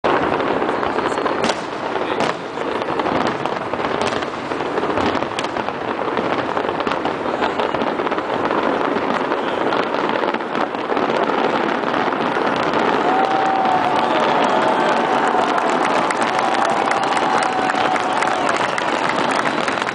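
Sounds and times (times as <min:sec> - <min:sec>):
fireworks bursting and crackling: 0:00.0 - 0:19.9.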